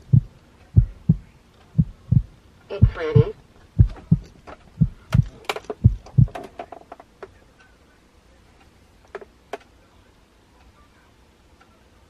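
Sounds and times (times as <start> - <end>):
dull thumps: 0.0 - 6.4.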